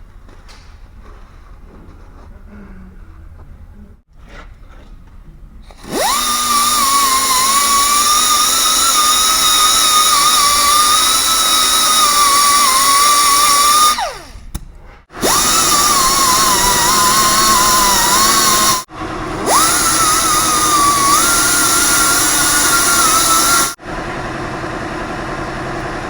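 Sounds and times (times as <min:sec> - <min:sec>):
rotary power tool whining: 0:05.6 - 0:26.0.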